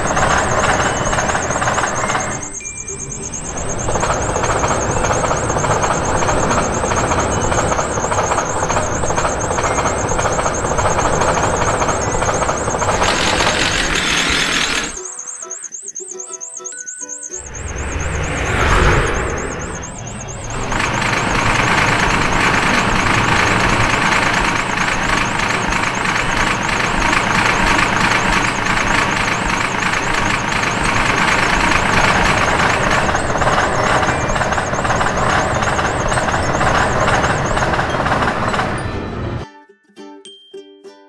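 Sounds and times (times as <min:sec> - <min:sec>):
train wheels rumbling and clattering: 0:00.0 - 0:15.0, 0:17.4 - 0:39.4
high warbling tone: 0:15.0 - 0:21.5.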